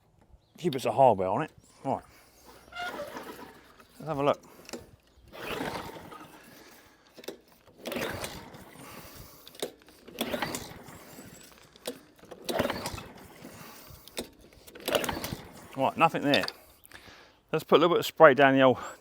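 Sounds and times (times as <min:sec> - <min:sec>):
lawnmower recoil starter whirring: 0:01.6 - 0:16.8
engine turning over: 0:02.2 - 0:16.7.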